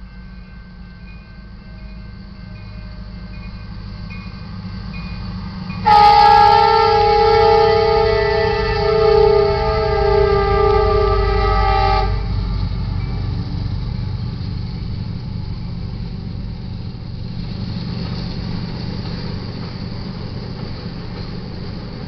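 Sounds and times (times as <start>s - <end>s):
low rumble of train rolling past: 0.0s - 22.0s
train horn chord: 5.8s - 12.5s.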